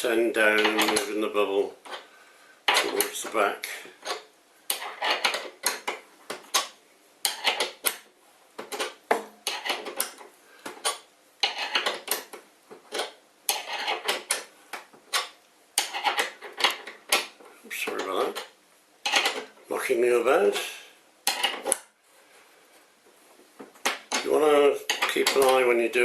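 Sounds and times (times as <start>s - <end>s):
metallic clinking and scraping: 0.4s - 2.1s, 2.7s - 14.5s, 15.1s - 19.8s, 20.4s - 21.9s.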